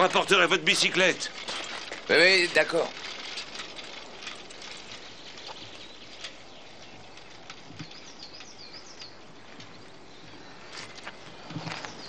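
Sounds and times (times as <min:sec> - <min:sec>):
outdoor background hiss: 0:00.0 - 0:12.0
bird chirps: 0:04.9 - 0:12.0.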